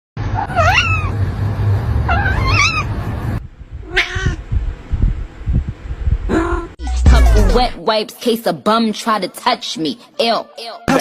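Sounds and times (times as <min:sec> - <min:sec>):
cat meowing: 0:00.4 - 0:01.1, 0:02.1 - 0:02.9, 0:03.8 - 0:04.4
low rumble: 0:02.7 - 0:07.8.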